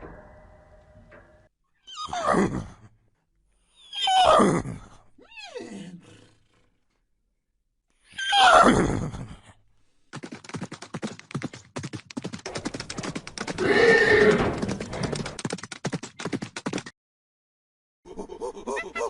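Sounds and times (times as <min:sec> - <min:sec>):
horse whinnying: 0:03.8 - 0:04.6, 0:13.5 - 0:15.2
hoof clip-clops: 0:10.2 - 0:16.8.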